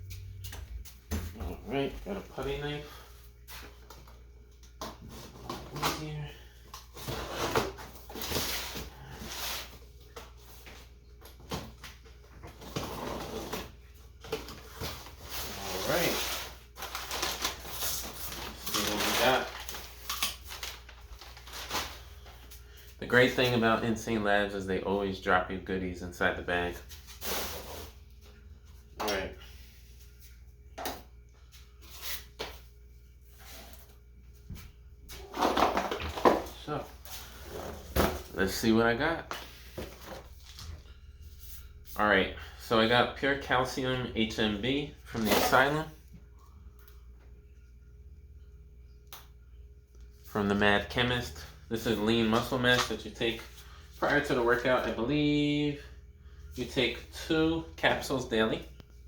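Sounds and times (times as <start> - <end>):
package rustling: 16.3 - 22.1.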